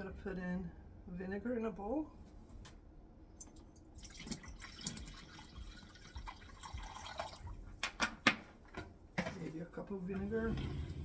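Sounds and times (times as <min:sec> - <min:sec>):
liquid pouring into a bowl: 0:03.9 - 0:07.6.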